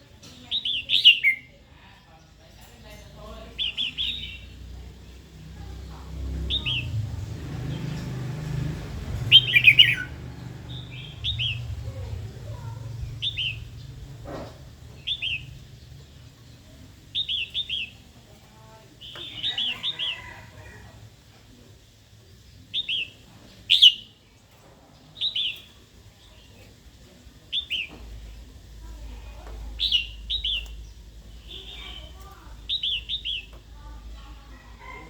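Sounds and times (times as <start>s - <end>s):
bird singing chattering notes: 0.3s - 1.6s, 2.7s - 5.3s, 6.1s - 14.2s, 14.9s - 18.1s, 22.3s - 24.4s, 25.1s - 26.5s, 27.5s - 28.9s, 29.6s - 34.2s.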